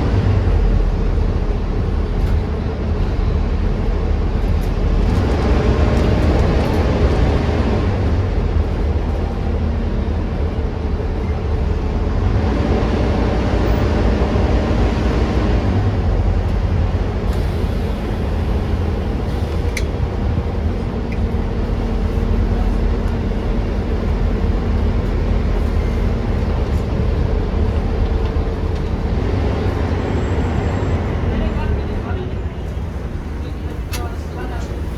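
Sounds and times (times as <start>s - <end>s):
bus diesel engine running: 0.0s - 34.9s
road rumble: 0.0s - 34.9s.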